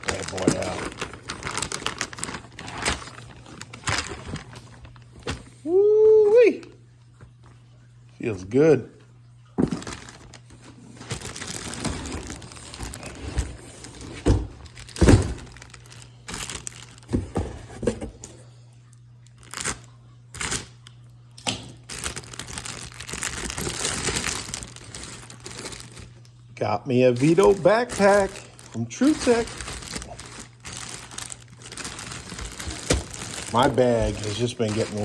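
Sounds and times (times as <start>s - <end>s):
packaging crinkling and tearing: 0.0s - 5.6s, 9.6s - 17.2s, 19.2s - 21.0s, 21.8s - 26.4s, 27.1s - 35.0s.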